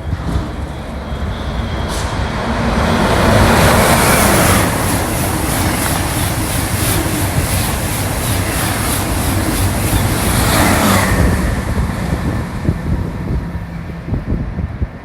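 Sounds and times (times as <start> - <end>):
high-speed train passing: 0.0 - 15.0
wind buffeting microphone: 0.0 - 15.0.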